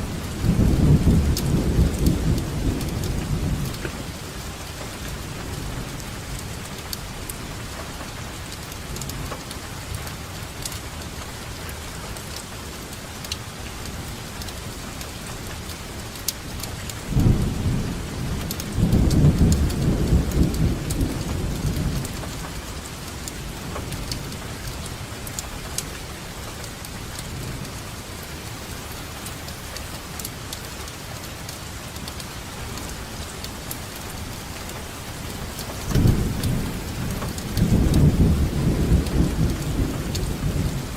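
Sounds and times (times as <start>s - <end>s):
steady rain: 0.0s - 40.9s
sharp raindrop hits: 14.4s - 40.9s.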